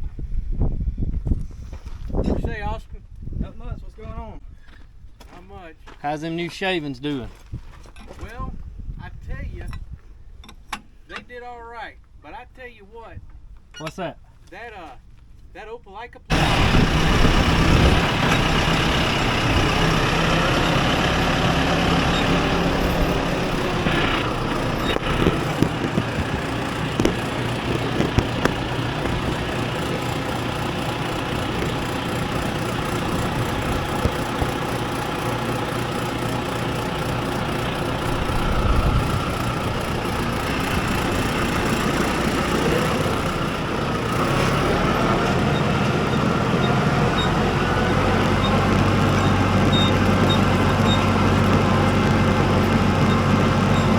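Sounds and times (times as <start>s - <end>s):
vehicle engine running: 16.3s - 53.9s.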